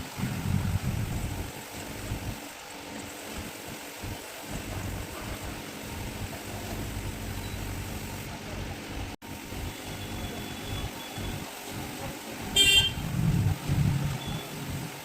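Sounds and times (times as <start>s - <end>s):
road traffic rumble: 0.0s - 15.0s
car horn toot: 12.6s - 13.0s.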